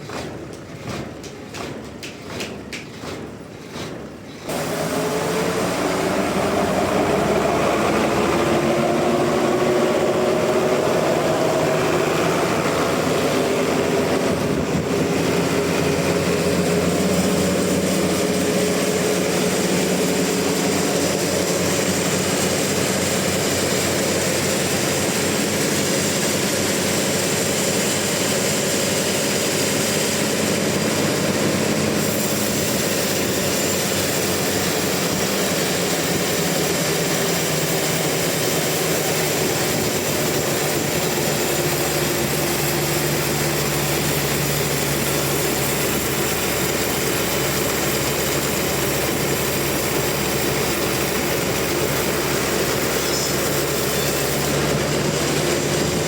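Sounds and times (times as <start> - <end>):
sawmill saw cutting log: 0.0 - 56.0.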